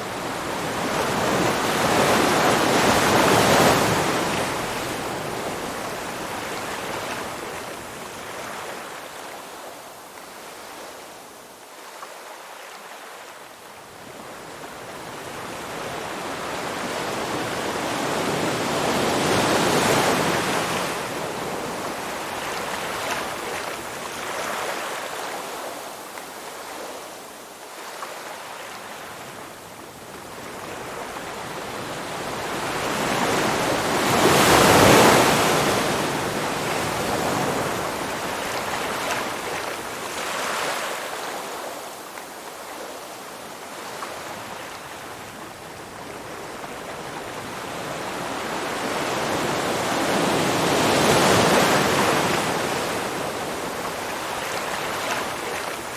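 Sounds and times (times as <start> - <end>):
sea waves breaking: 32.2 - 41.8.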